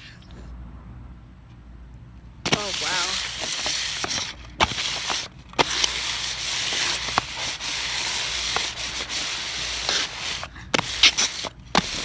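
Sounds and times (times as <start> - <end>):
paper bag rustling and crinkling: 2.5 - 12.0.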